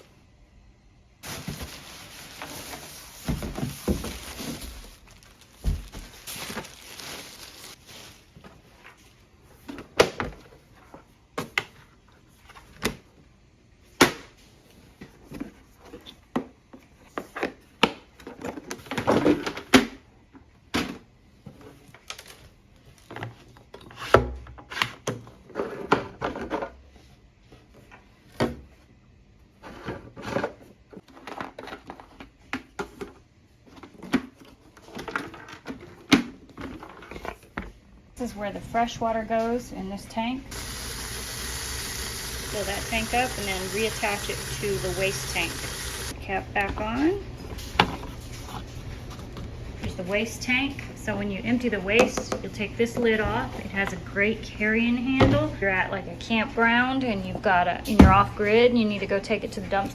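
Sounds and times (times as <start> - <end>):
rustling: 1.2 - 9.1.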